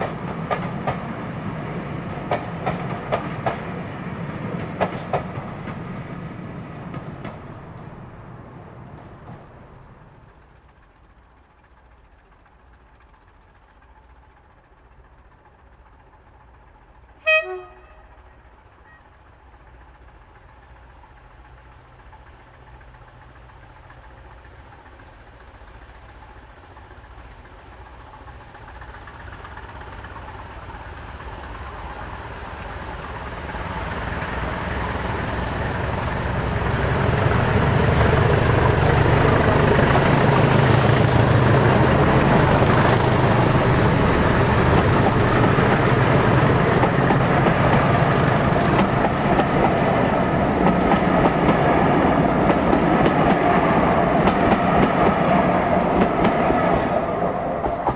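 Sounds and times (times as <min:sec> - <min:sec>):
diesel locomotive engine: 0:00.0 - 0:57.9
locomotive horn blast: 0:17.2 - 0:18.2.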